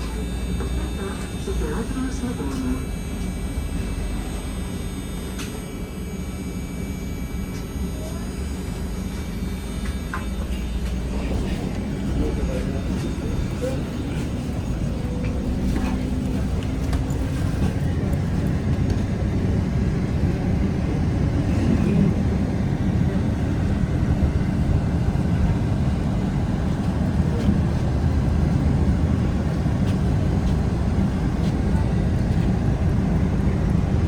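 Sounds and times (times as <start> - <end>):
vehicle rumble from inside: 10.3 - 34.0.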